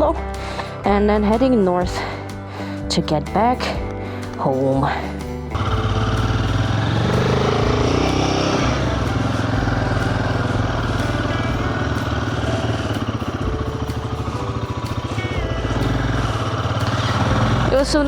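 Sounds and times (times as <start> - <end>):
motorcycle engine running: 5.5 - 18.0.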